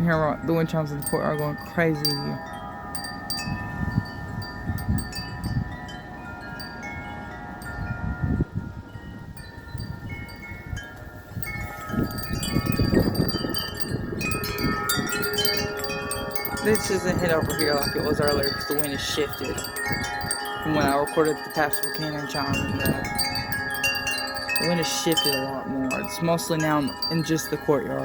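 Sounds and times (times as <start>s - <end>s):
metal wind chimes ringing: 0.0s - 28.0s
wind rumbling on microphone: 0.0s - 28.0s.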